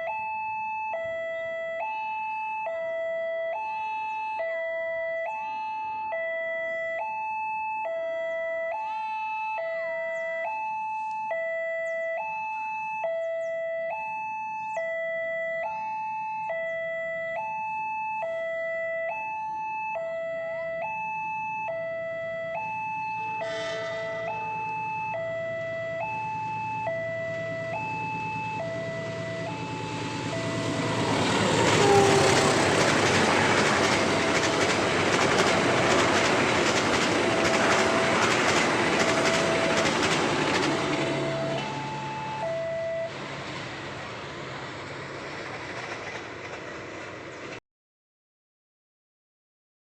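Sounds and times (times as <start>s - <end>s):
level crossing alarm two-note: 0.0s - 34.8s, 39.0s - 43.1s
train passing: 21.9s - 47.6s
wheels clacking over rail joints: 26.4s - 47.6s.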